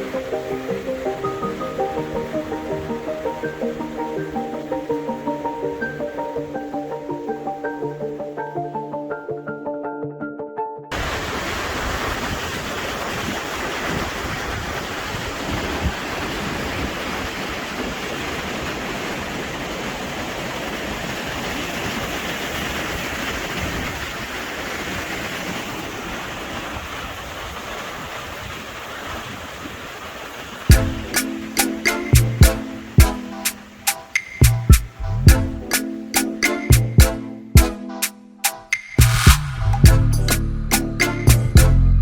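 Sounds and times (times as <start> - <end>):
river water rushing: 0.0 - 8.5, 10.9 - 37.2
wind buffeting microphone: 11.0 - 31.1.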